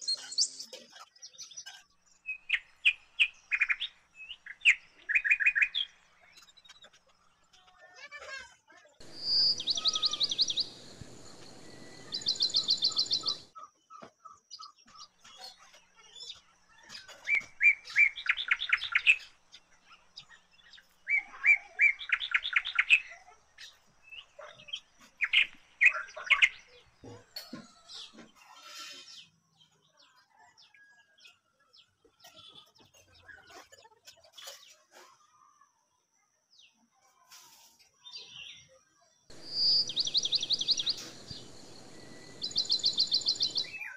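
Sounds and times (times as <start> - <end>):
birds singing trilled song: 0.0 - 7.9, 9.0 - 35.1, 37.9 - 43.9
steady hiss: 9.0 - 13.5, 39.3 - 43.8.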